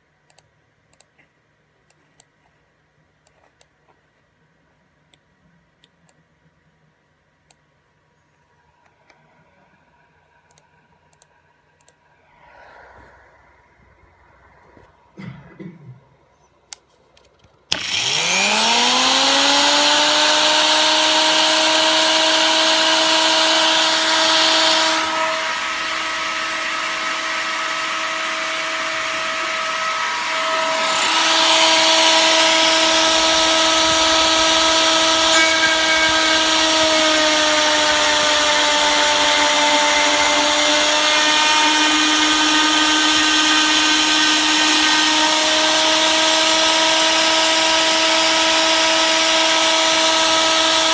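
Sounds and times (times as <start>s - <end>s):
cutter milling workpiece: 17.7s - 50.9s
die grinder whine: 17.7s - 50.9s.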